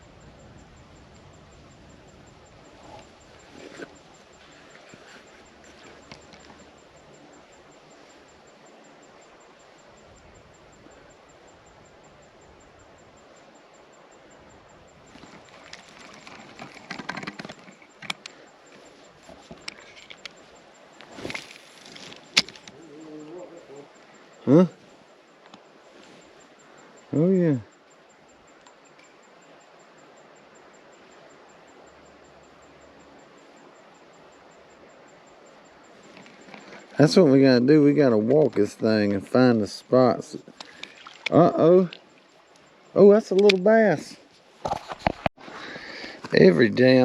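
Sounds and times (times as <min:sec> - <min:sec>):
faint steady hiss: 0:00.0 - 0:47.0
footsteps over rocks and brush: 0:20.4 - 0:22.8.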